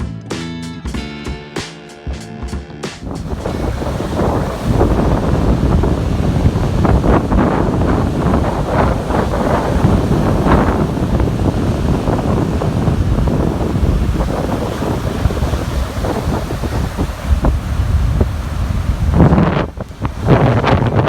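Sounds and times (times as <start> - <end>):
heavy surf breaking: 2.9 - 21.0
storm wind buffeting microphone: 3.0 - 21.0.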